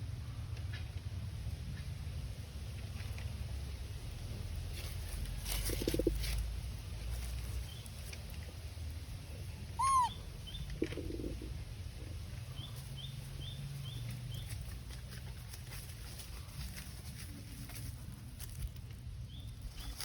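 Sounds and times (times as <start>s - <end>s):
high animal call: 9.7s - 10.4s
faint high chirps: 9.8s - 10.7s.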